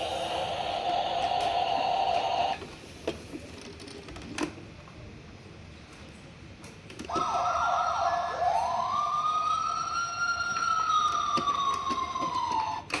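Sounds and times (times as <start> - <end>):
toy electronic siren: 0.0 - 2.6, 7.1 - 13.0.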